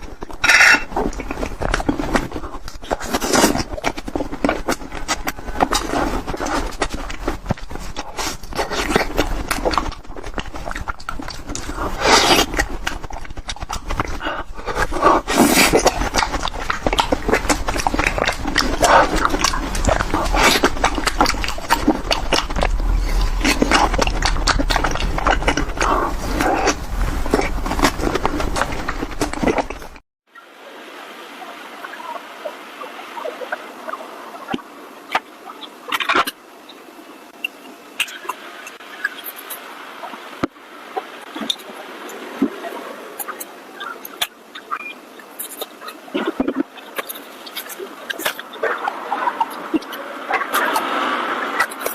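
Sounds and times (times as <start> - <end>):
loud fast chewing: 0.0 - 30.0, 42.4 - 51.9
mouth smacking: 0.0 - 30.0, 42.4 - 51.9.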